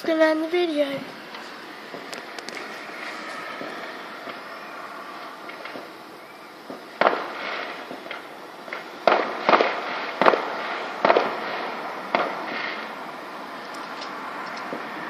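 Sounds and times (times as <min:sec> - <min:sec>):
fireworks bangs: 0:00.0 - 0:15.0
faint firework pops: 0:01.3 - 0:04.4, 0:05.4 - 0:05.9, 0:06.7 - 0:12.9.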